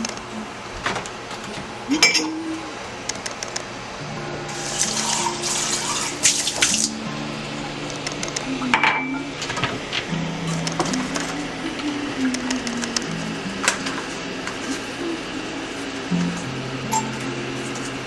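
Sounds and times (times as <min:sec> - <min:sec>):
background music with held notes: 0:03.8 - 0:18.0
splashing liquid hiss: 0:04.6 - 0:07.0.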